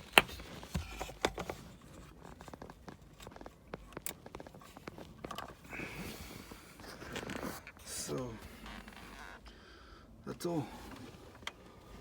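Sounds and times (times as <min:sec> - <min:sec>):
hard plastic clicking and scraping: 0:00.0 - 0:05.7.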